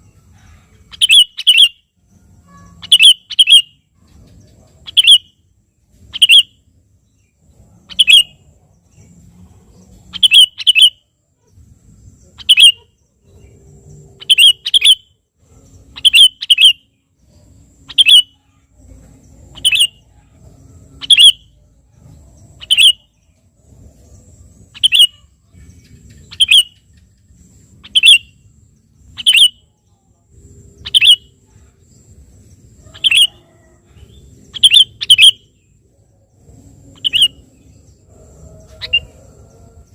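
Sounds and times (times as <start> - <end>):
bird calling: 0.0 - 1.8, 2.4 - 5.3, 6.1 - 6.5, 7.9 - 8.4, 10.1 - 11.0, 12.3 - 13.6, 14.2 - 15.1, 15.9 - 16.9, 17.8 - 18.6, 19.5 - 20.4, 21.0 - 21.6, 22.5 - 23.2, 24.6 - 28.4, 29.1 - 29.7, 30.8 - 31.7, 32.8 - 35.7, 36.8 - 37.6, 38.4 - 39.9.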